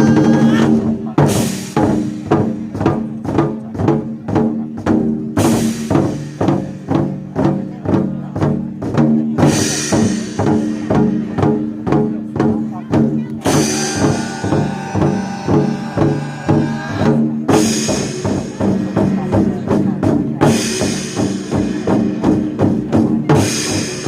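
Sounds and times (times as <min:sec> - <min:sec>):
war drums beaten in rhythm: 0:00.0 - 0:24.0
cymbal crashes: 0:13.4 - 0:16.3.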